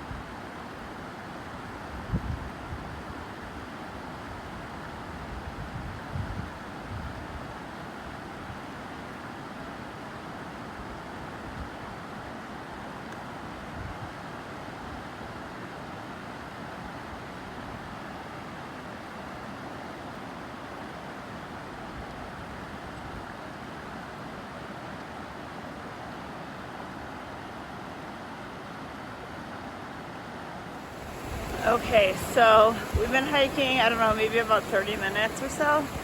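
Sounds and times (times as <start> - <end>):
mountain stream rushing: 23.6 - 36.0.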